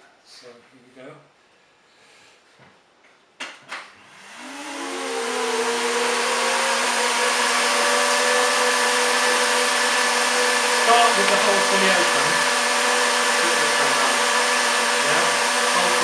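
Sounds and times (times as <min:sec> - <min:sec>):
vacuum cleaner motor whine: 0:04.0 - 0:16.0.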